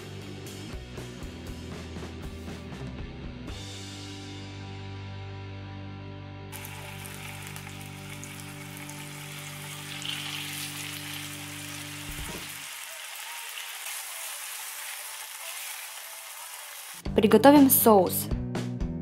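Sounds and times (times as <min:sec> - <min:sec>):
chicken sizzling in hot oil: 0:06.6 - 0:17.1.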